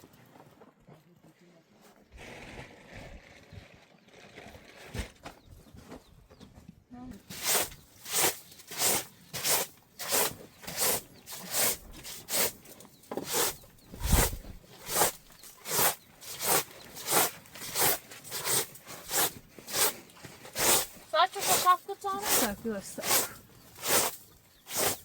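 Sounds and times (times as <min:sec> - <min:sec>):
rhythmic scraping strokes: 0:20.6 - 0:25.0.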